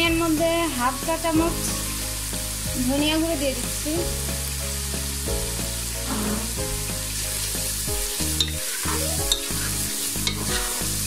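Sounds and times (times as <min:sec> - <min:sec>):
background music: 0:00.0 - 0:11.0
paste sizzling in hot oil: 0:00.2 - 0:11.0
spatula stirring: 0:08.1 - 0:11.0.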